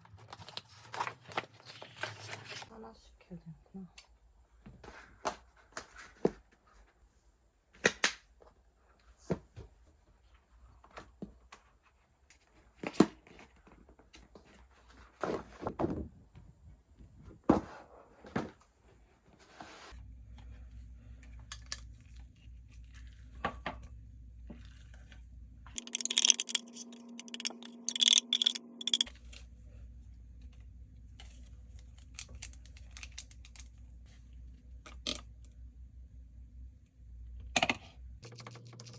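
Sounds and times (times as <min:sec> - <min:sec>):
objects and packaging handled: 0:00.0 - 0:02.7, 0:24.5 - 0:29.6, 0:30.4 - 0:35.2.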